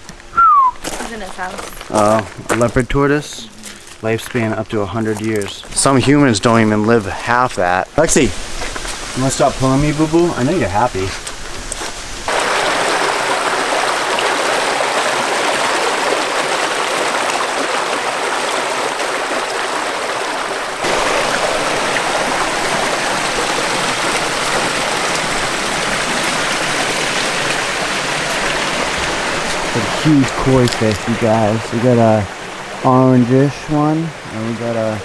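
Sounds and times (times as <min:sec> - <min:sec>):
stream water splashing: 0:00.0 - 0:35.0.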